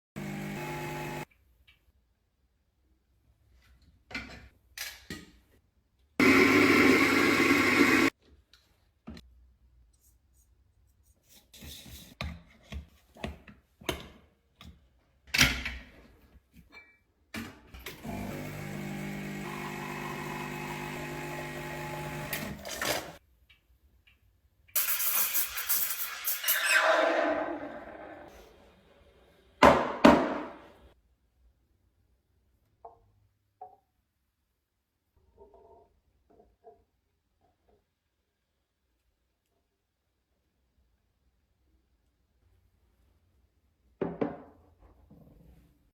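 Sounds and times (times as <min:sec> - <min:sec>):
coffee machine motor humming: 0:00.2 - 0:01.2, 0:06.2 - 0:08.1, 0:17.9 - 0:23.1.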